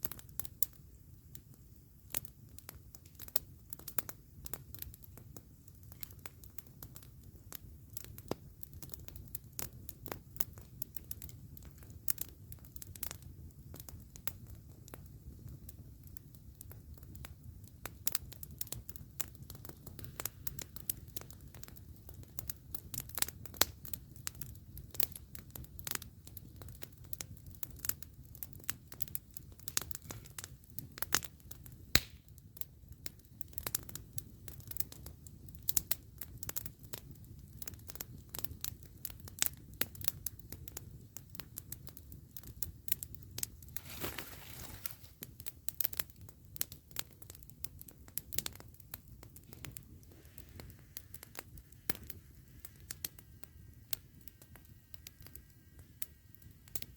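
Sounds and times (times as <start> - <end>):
campfire crackling and popping: 0.0 - 56.9
low rumble of flames: 0.0 - 56.9
fire hissing: 17.9 - 24.6, 28.6 - 31.1, 42.4 - 45.8, 48.9 - 56.9.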